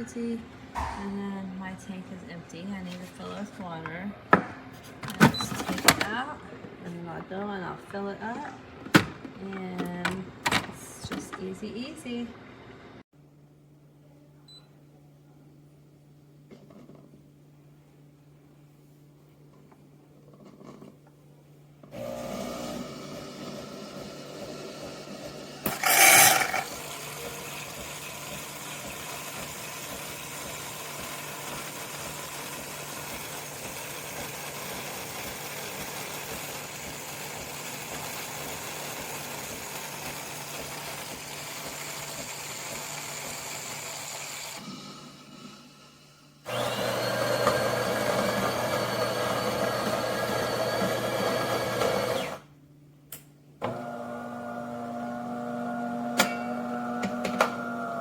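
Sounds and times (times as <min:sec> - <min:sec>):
espresso machine motor hum: 0:22.0 - 0:52.4, 0:53.7 - 0:58.0.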